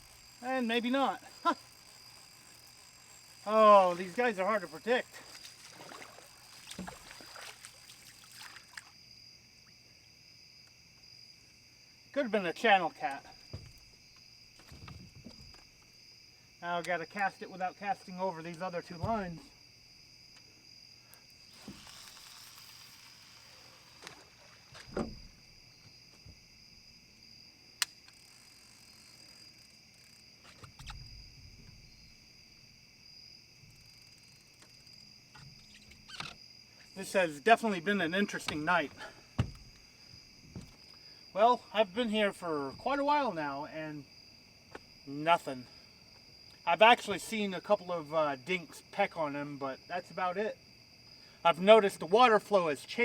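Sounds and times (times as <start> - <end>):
night insects chirring: 0.0 - 53.0
dull thump: 13.5 - 13.9, 24.7 - 25.5, 38.5 - 40.8
faint knocks and rustles: 14.6 - 15.7
sharp click: 27.8 - 28.2.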